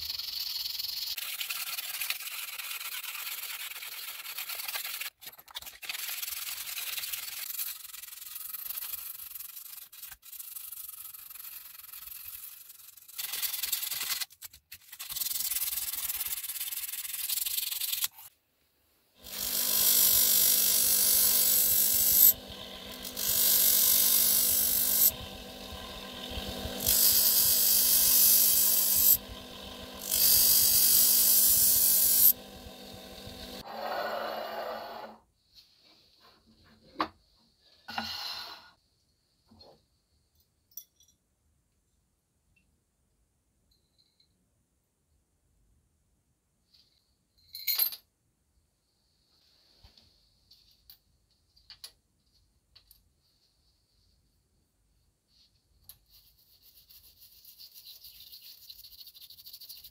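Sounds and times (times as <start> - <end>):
sanding machine humming: 19.2 - 33.6.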